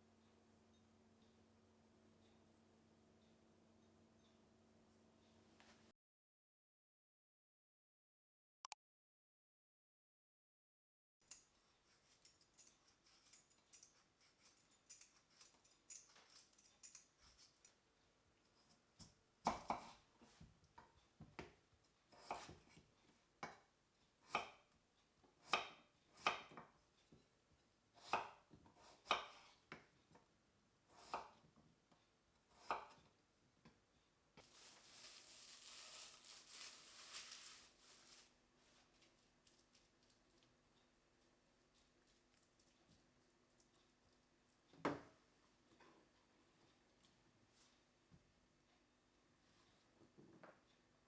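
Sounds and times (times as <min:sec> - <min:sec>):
knife cutting on cutting board: 0:22.2 - 0:22.7.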